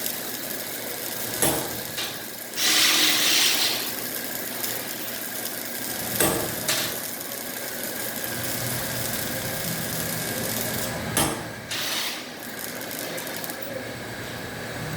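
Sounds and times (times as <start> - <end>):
machine hum and hiss: 0.0 - 14.9
short hissing bursts: 2.6 - 4.0.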